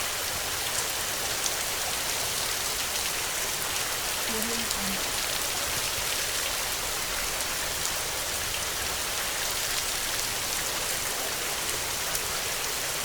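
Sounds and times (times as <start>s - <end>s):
heavy rain hiss: 0.0s - 13.0s.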